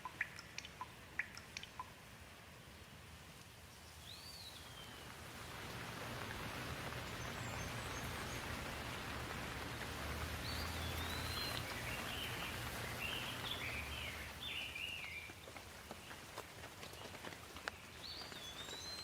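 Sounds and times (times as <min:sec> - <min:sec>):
bird chirping: 0:00.0 - 0:02.0, 0:03.7 - 0:05.2, 0:06.9 - 0:09.7, 0:10.4 - 0:16.2, 0:17.7 - 0:19.0
steady rain falling: 0:00.0 - 0:19.0.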